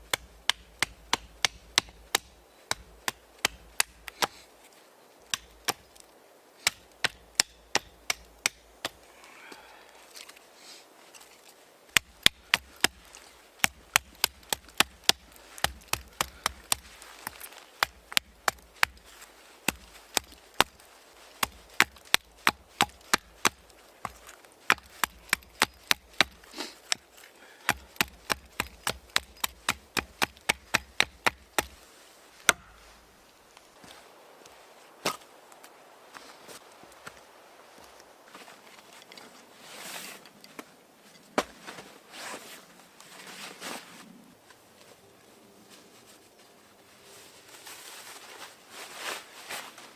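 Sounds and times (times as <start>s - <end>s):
chopping strikes on wood: 0.1s - 4.4s, 5.3s - 5.9s, 6.6s - 9.0s, 11.9s - 20.8s, 21.4s - 31.8s, 32.4s - 32.9s.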